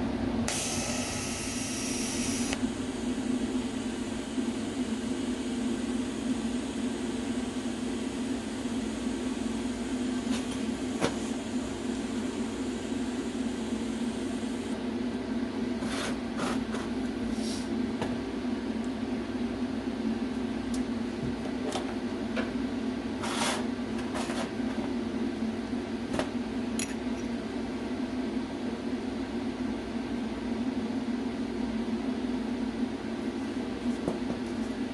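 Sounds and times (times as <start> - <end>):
machine hum: 0.0 - 15.6
short hissing bursts: 0.5 - 2.6.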